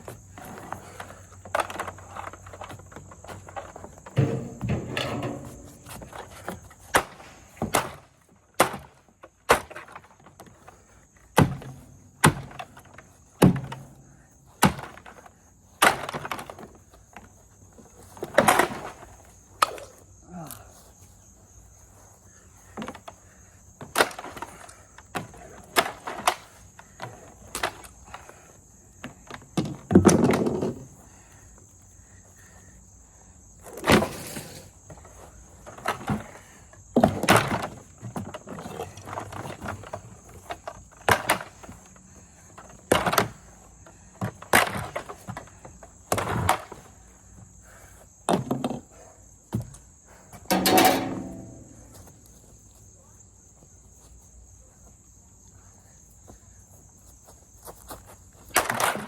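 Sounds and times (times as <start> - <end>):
insect-like chirr: 10.4 - 59.0.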